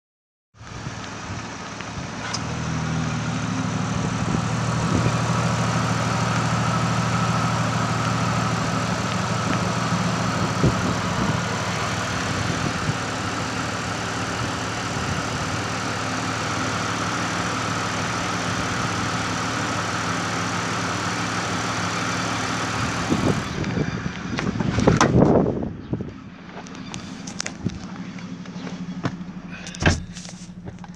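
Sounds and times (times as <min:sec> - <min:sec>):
car engine idling: 0:00.6 - 0:30.9
rustling: 0:26.5 - 0:30.9.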